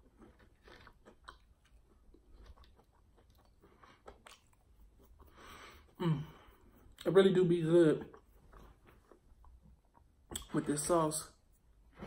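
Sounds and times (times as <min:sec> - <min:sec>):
chewing chicken wing: 0:00.0 - 0:05.3.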